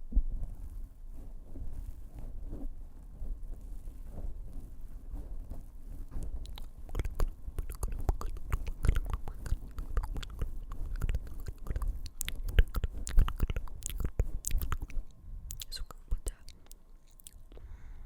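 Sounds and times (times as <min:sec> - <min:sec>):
fingers tapping on microphone: 0:06.4 - 0:16.8
asmr mouth sounds: 0:06.4 - 0:17.7.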